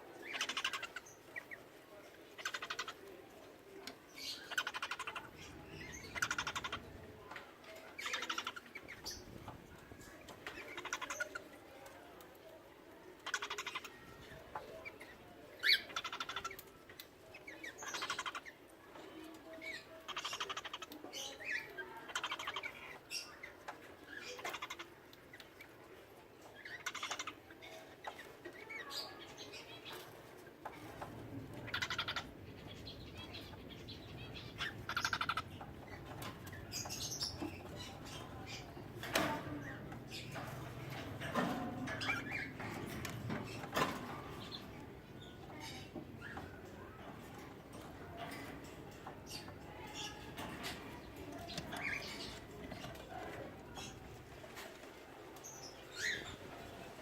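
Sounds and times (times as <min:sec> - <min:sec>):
cockatiels chirping: 0:00.2 - 0:01.5, 0:04.3 - 0:07.0, 0:13.2 - 0:16.6, 0:19.7 - 0:23.5, 0:26.6 - 0:29.2, 0:30.8 - 0:48.5.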